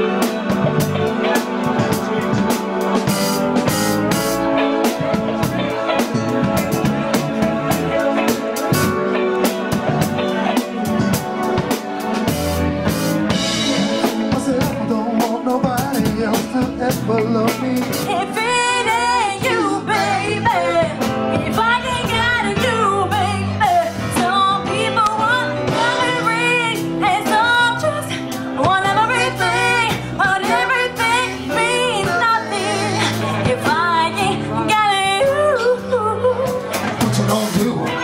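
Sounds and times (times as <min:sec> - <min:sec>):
steady drum beat: 0:00.0 - 0:22.9, 0:36.4 - 0:38.0
live band playing: 0:00.0 - 0:38.0
lead vocalist singing: 0:04.0 - 0:38.0.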